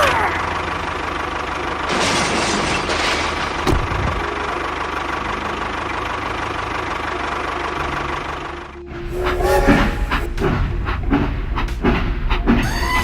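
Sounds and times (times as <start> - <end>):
small engine idling: 0.0 - 1.9, 3.5 - 8.9.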